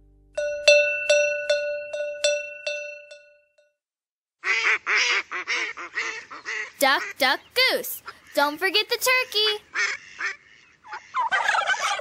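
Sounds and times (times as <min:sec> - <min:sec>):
cowbell ringing: 0:00.4 - 0:03.7
duck quacking: 0:04.4 - 0:07.4, 0:09.4 - 0:12.0.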